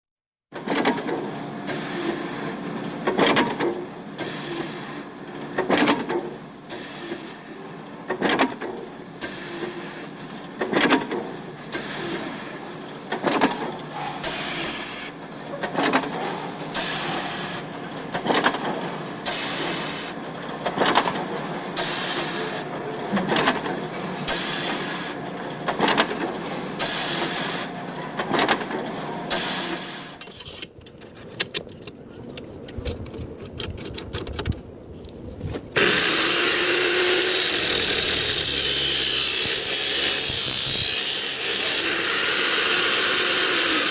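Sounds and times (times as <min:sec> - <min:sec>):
sharp knocks and clicks: 0:30.2 - 0:35.7
mechanical clatter: 0:30.2 - 0:43.9.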